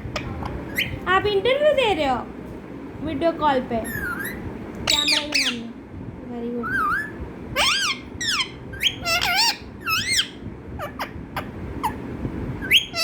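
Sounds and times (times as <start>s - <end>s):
parrot squeaky calls: 0.1s - 1.0s, 3.8s - 5.7s, 6.6s - 12.0s, 12.6s - 13.0s.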